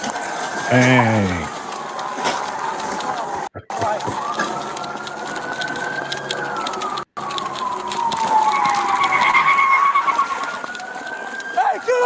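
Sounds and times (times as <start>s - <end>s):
police sirens wailing: 0.0s - 12.0s
siren fast warbling tone: 3.6s - 11.7s.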